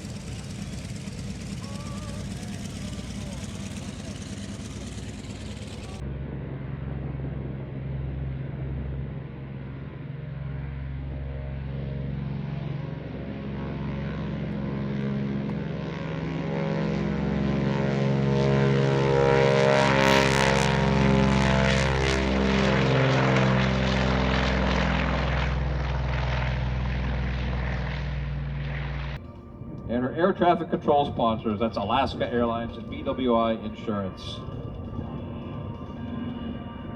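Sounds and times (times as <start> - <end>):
propeller plane engines: 0.0 - 36.9.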